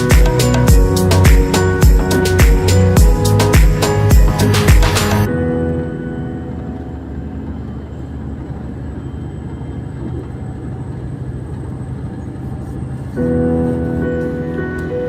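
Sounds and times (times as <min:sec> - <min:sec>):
music: 0:00.0 - 0:08.0, 0:13.1 - 0:15.0
moving vehicle rumble: 0:00.0 - 0:15.0.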